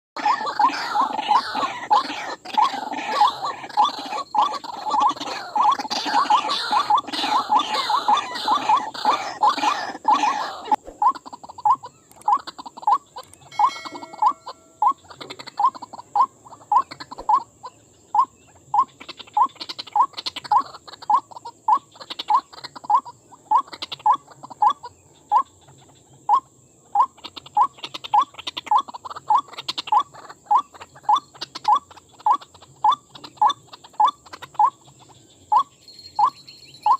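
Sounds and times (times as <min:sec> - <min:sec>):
waterhen calling: 0:00.2 - 0:25.5.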